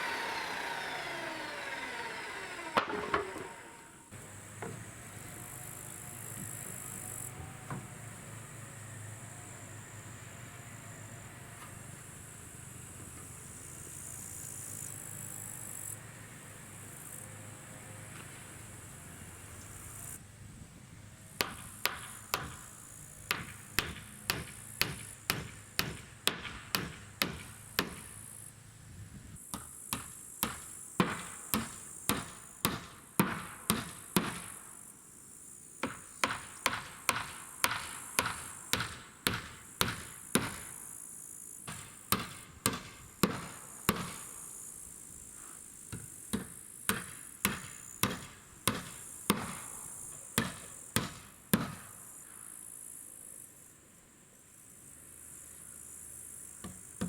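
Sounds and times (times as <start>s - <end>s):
hammer driving nails: 0.0s - 7.9s, 21.4s - 28.2s, 29.5s - 34.6s, 35.8s - 40.8s, 41.7s - 44.3s, 46.3s - 51.9s
insects chirping: 0.0s - 20.2s, 21.7s - 57.0s.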